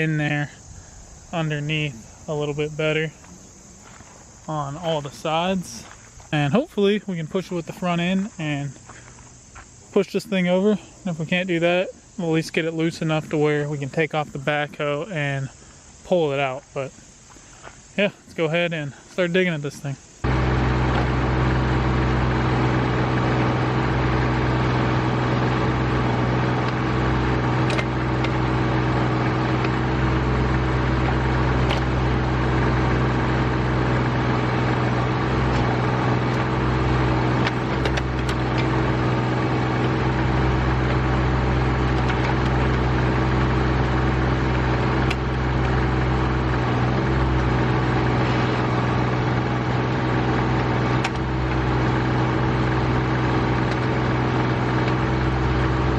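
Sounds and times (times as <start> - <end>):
tractor diesel engine running: 20.2 - 55.9.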